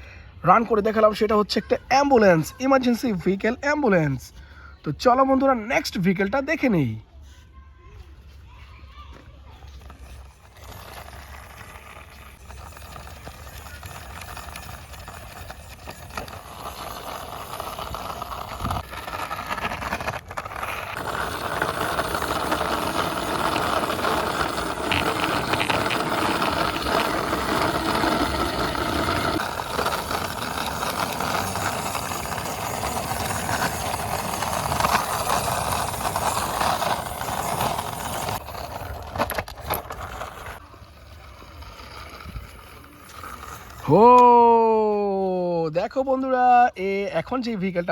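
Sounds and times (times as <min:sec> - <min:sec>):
toy car wheels rolling and rattling: 0:08.8 - 0:44.6.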